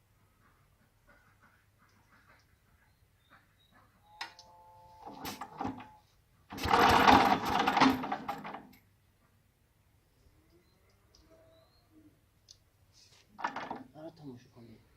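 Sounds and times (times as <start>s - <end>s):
engine starting attempt: 5.0s - 8.8s, 13.4s - 14.0s.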